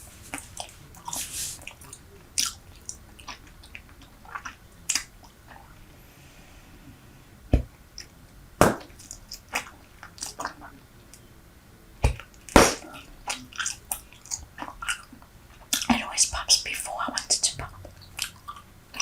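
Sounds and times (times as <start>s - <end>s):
gum chewing mouth clicks: 0.3s - 5.7s, 12.4s - 19.0s.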